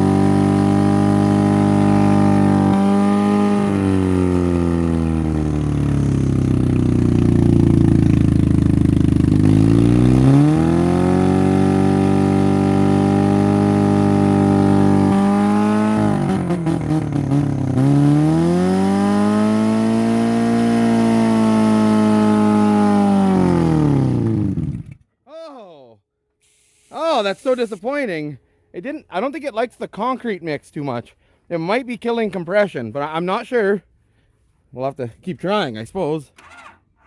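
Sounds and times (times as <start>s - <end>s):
car engine revving roughly: 0.0s - 25.0s.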